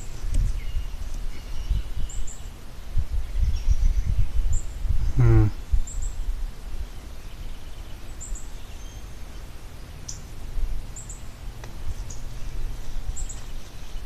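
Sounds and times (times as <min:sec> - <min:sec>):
low microphone rumble: 0:00.0 - 0:08.0
songbirds chirping: 0:00.0 - 0:14.0.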